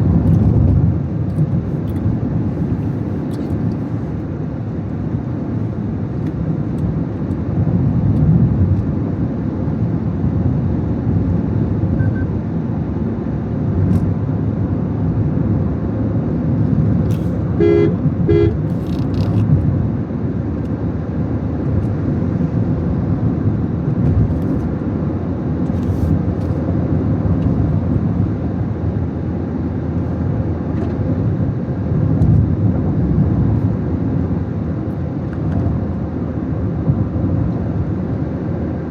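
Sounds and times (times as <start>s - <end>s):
car driving rumble: 0.0s - 38.9s
car horn beeps: 12.0s - 12.4s, 17.6s - 18.8s.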